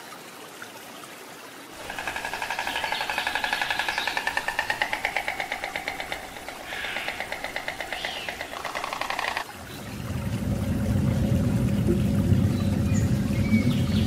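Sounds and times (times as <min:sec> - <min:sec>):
storks bill-clattering: 0:01.8 - 0:09.4.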